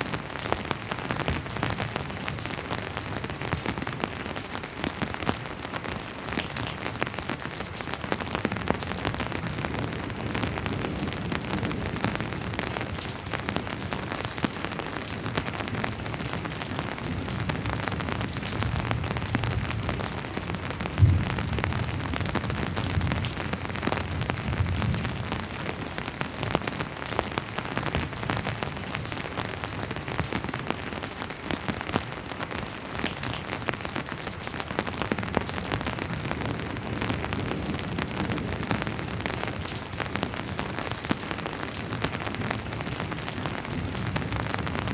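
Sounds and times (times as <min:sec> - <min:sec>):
raindrops falling: 0:00.0 - 0:44.9
distant thunder rumbling: 0:20.9 - 0:23.3.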